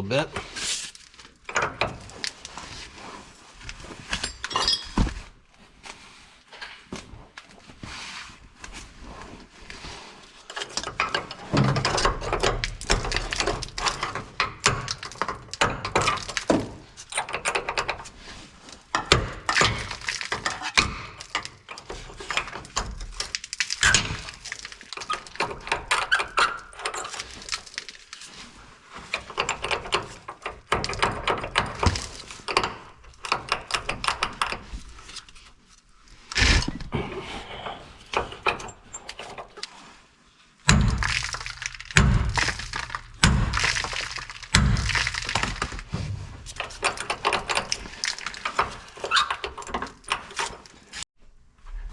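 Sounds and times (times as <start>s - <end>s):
hand tools clicking and knocking: 1.2s - 2.7s, 4.1s - 5.2s, 10.5s - 18.2s, 18.8s - 28.0s, 29.0s - 35.3s, 36.4s - 39.7s, 40.7s - 51.0s.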